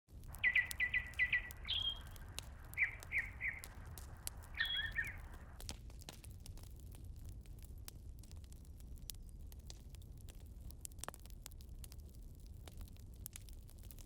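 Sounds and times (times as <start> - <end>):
small birds chirping: 0.2 - 5.6
faint sharp clicks: 0.2 - 6.3.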